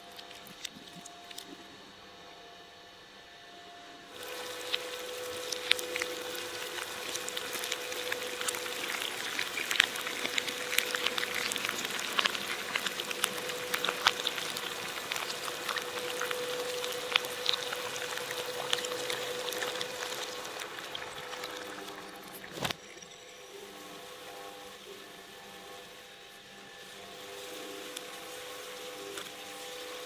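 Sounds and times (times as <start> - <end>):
electric shredder crackling: 4.1 - 22.8.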